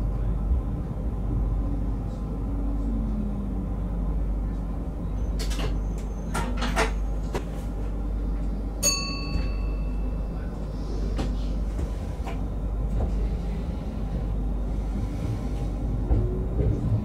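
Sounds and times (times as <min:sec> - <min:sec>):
train cab rumble: 0:00.0 - 0:17.0
short metallic ring: 0:08.8 - 0:10.0.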